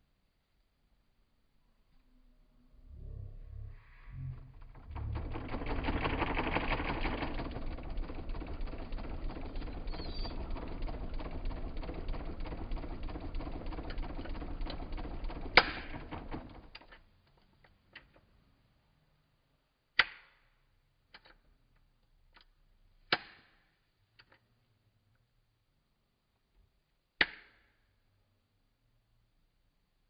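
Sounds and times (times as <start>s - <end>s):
electric fan rattling clicks: 4.6s - 17.0s.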